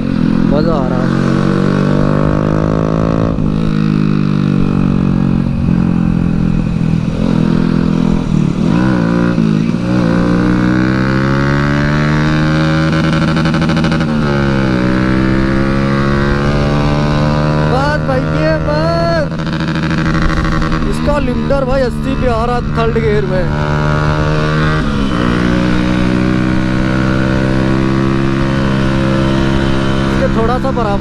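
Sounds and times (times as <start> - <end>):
motorcycle engine at speed: 0.0 - 31.0
wind rumble on microphone: 0.0 - 31.0.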